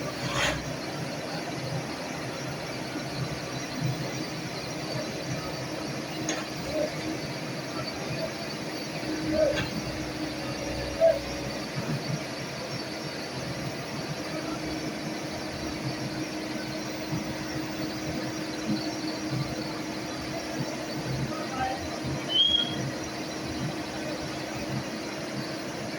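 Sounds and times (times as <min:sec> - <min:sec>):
short squeaks: 0:00.0 - 0:00.7
excavator engine humming: 0:00.0 - 0:25.9.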